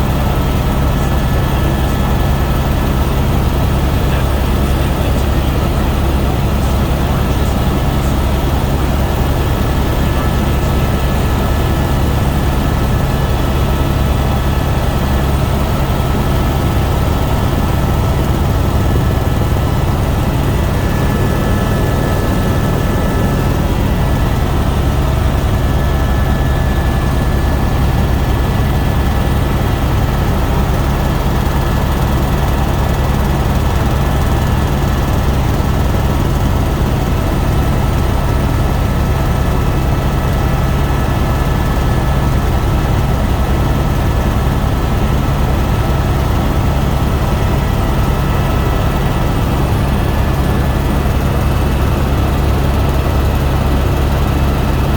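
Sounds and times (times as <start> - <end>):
helicopter rotor and engine: 0.0 - 54.9
faint high whine: 17.4 - 29.4.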